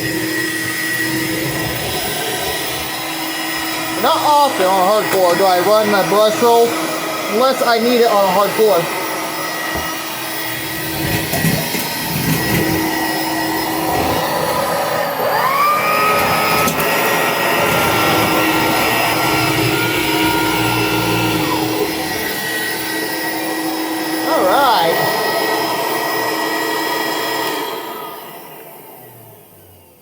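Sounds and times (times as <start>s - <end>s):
high-pitched whine: 0.0s - 30.0s
upright vacuum cleaner running: 0.0s - 30.0s.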